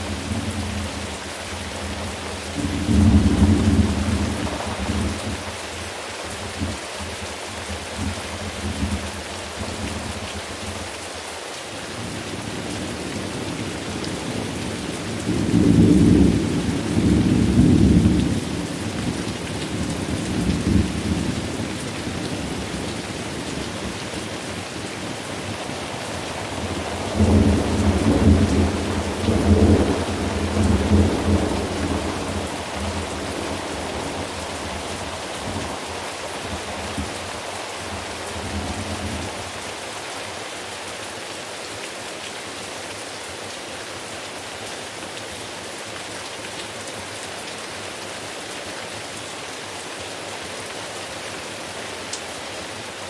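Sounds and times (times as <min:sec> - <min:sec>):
steady rain: 0:00.0 - 0:53.0
rolling thunder: 0:02.6 - 0:05.4, 0:26.2 - 0:37.2.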